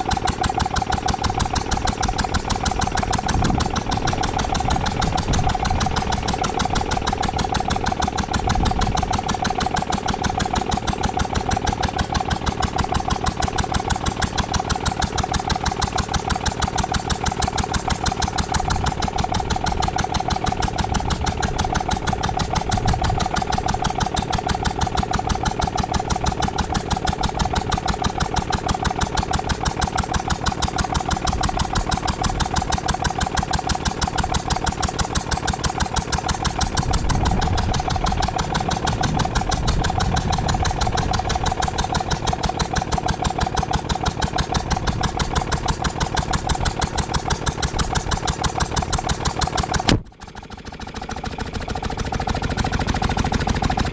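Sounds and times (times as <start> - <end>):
petrol air compressor running: 0.0 - 53.9.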